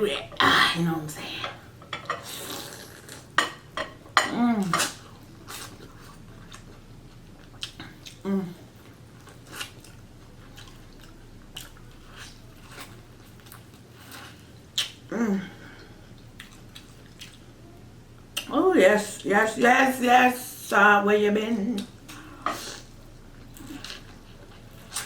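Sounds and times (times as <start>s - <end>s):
chewing and mouth smacks: 4.8s - 15.1s, 16.1s - 17.6s
person humming: 8.2s - 8.7s, 15.1s - 15.7s.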